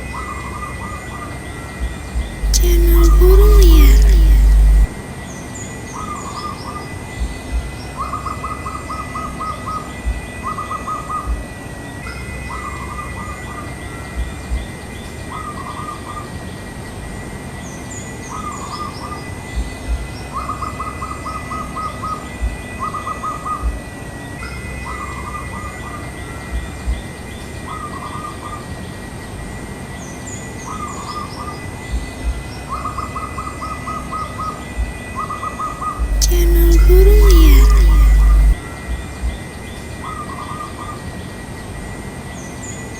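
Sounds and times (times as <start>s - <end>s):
steady high-pitched whine: 2.4s - 5.0s, 36.1s - 38.6s.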